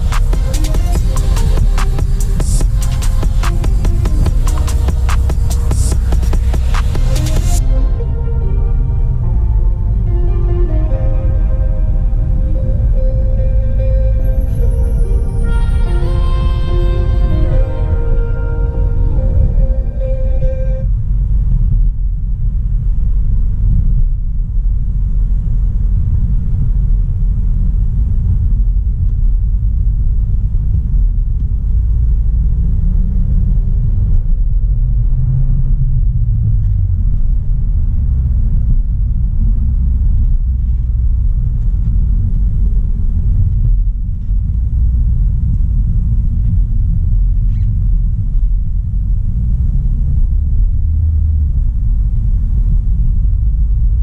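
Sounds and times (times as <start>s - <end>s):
tyres on the road: 0.0s - 21.1s
car engine while driving: 0.0s - 54.0s.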